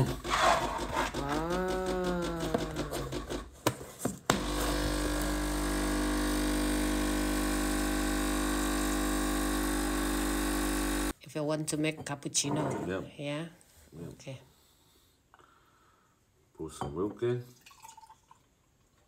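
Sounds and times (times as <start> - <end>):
espresso machine pump humming: 4.3 - 11.2.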